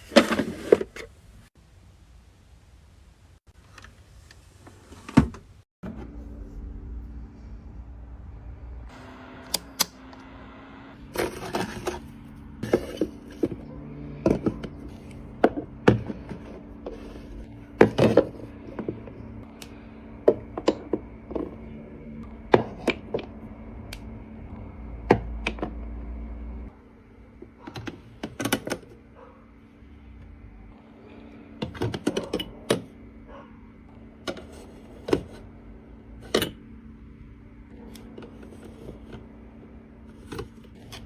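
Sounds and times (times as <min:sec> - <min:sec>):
steady low hum: 0:05.8 - 0:41.0
containers clicking and knocking: 0:11.2 - 0:17.0.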